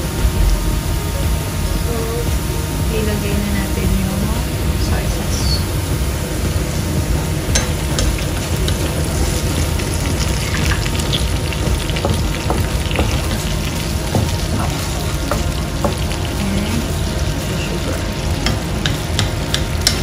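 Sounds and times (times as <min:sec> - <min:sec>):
garlic sizzling in a frying pan: 0:00.0 - 0:20.0
wooden spatula stirring: 0:07.5 - 0:20.0.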